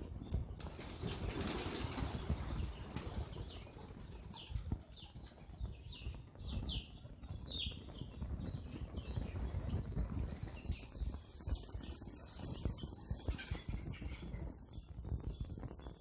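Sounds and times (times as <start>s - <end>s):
pigeon wings flapping: 0.6s - 5.0s.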